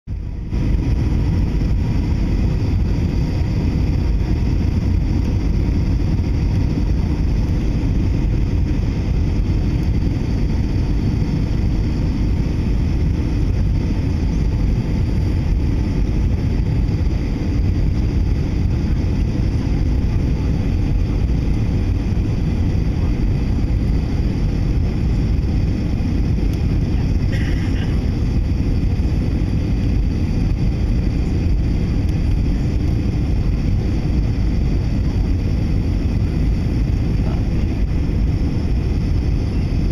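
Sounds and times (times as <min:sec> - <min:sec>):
jet engine and airflow noise: 0:00.1 - 0:39.9.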